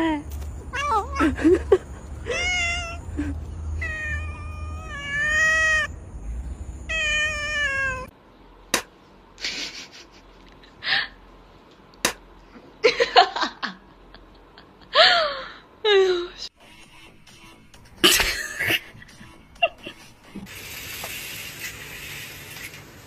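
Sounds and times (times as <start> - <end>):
low hum: 0.2 - 7.2
cat meowing: 0.7 - 1.4, 2.3 - 3.1, 3.8 - 5.9, 6.9 - 8.1.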